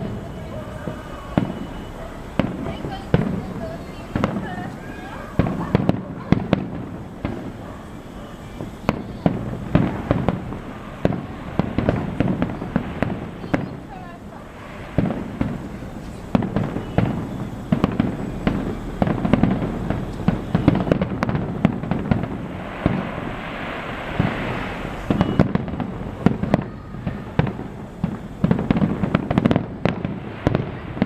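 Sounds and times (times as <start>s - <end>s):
fireworks bangs and booms: 0.0s - 31.0s
fireworks crackling hiss: 0.0s - 31.0s.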